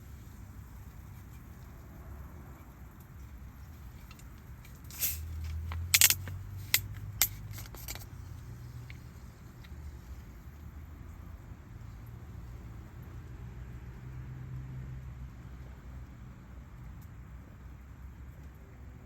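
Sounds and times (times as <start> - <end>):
sharp clicks and knocks: 3.9 - 8.2.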